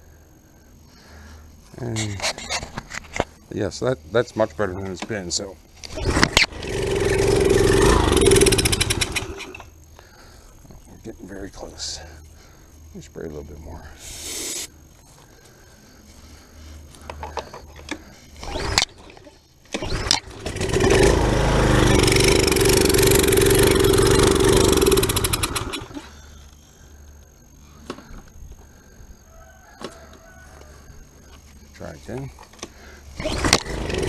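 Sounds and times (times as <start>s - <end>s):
recoil starter cord pulls: 5.8s - 9.7s, 17.1s - 26.0s, 32.5s - 34.0s
small engine running: 5.8s - 9.8s, 17.2s - 26.3s, 32.7s - 34.0s
starter fluid spray hiss: 14.0s - 14.8s.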